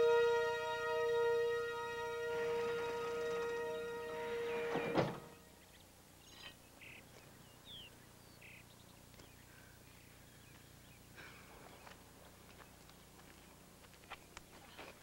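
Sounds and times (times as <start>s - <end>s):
faint bird chirps: 5.5s - 11.9s.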